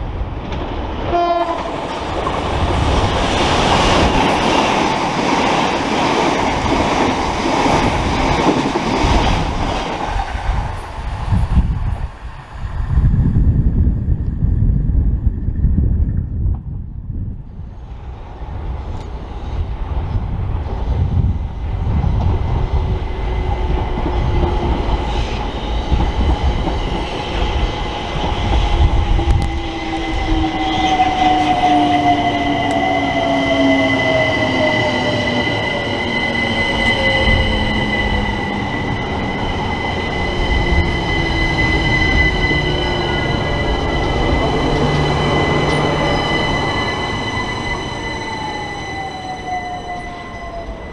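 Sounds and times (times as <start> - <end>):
train rumble: 0.0 - 50.9
high steady squeal: 22.4 - 50.9.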